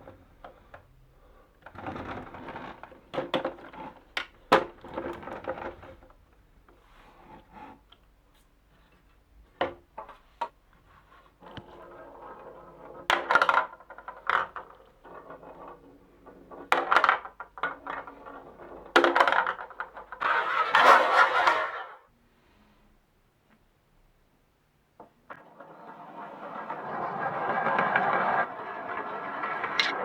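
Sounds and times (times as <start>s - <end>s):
marbles rolling on wooden track: 11.8s - 21.9s, 25.3s - 30.0s.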